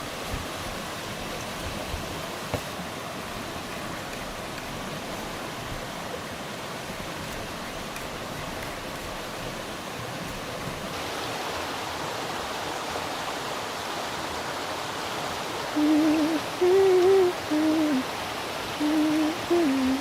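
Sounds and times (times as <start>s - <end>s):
rushing water: 0.0s - 20.0s
low wavering hoot-like tones: 15.8s - 18.1s, 18.8s - 20.0s.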